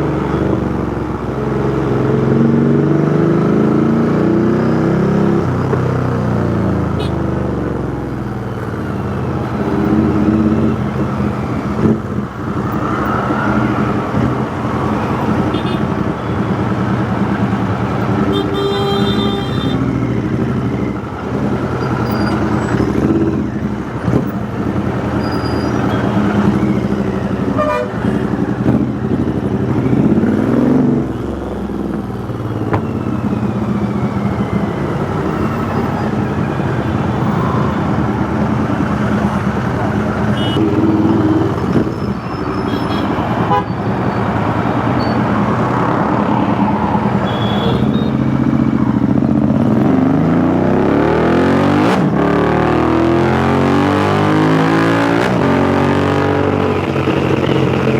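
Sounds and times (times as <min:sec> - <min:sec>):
vehicle horn: 0:07.0 - 0:07.3, 0:15.4 - 0:16.0, 0:18.2 - 0:20.0, 0:27.5 - 0:28.1, 0:40.3 - 0:41.1, 0:42.6 - 0:43.9, 0:47.2 - 0:48.2
motorcycle engine revving: 0:08.8 - 0:57.9.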